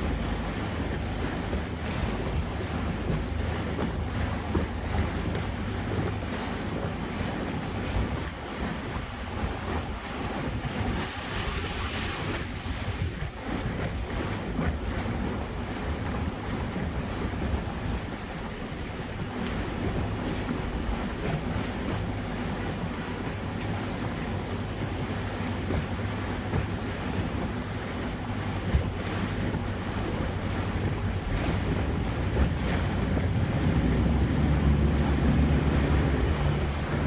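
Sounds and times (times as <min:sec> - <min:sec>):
water rushing past: 0:00.0 - 0:37.0
wind buffeting microphone: 0:00.0 - 0:37.0.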